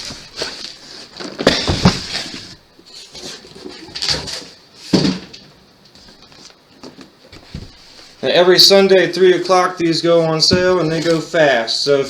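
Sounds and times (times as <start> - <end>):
cardboard boxes being handled: 9.9 - 11.7.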